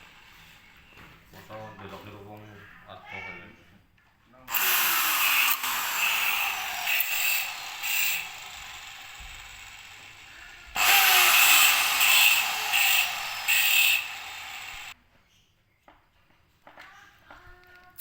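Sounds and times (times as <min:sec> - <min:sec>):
cooling fan motor whirring: 0:10.8 - 0:14.9.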